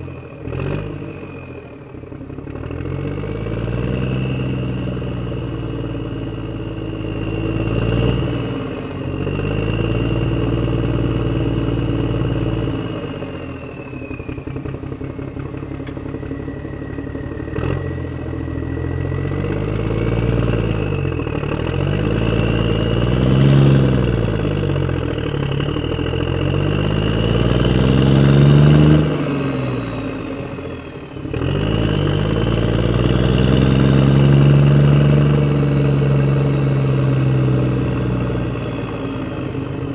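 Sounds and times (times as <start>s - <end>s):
steady high whine: 10.4s - 23.2s.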